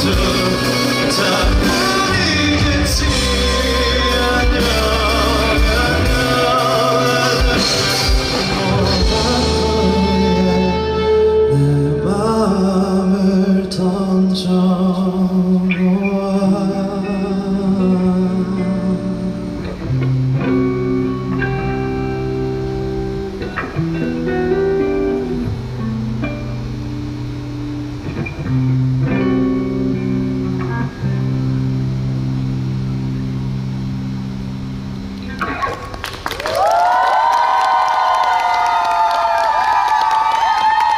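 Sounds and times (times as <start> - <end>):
person singing: 0.0 - 21.8
guitar chords ringing: 0.0 - 36.1
bass guitar: 0.0 - 40.9
live pop-rock band: 0.0 - 40.9.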